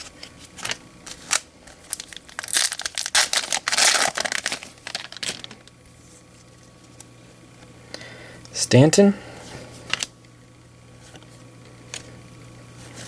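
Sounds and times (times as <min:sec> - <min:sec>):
foil wrapper crinkling and tearing: 0:00.0 - 0:05.7, 0:09.8 - 0:10.1.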